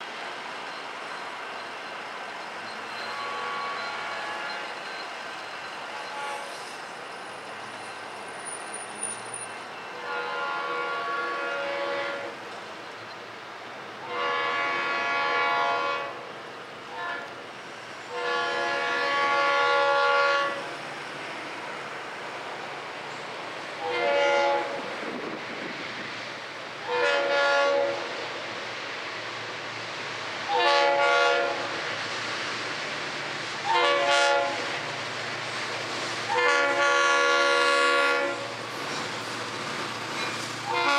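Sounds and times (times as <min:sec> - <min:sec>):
train rumble: 0:00.0 - 0:40.9
locomotive air horn blasts: 0:02.9 - 0:04.8, 0:05.9 - 0:06.6, 0:09.9 - 0:12.4, 0:14.0 - 0:16.3, 0:16.9 - 0:17.4, 0:18.1 - 0:20.8, 0:23.8 - 0:24.9, 0:26.8 - 0:28.1, 0:30.5 - 0:31.8, 0:33.6 - 0:34.8, 0:36.3 - 0:38.6, 0:40.6 - 0:40.9.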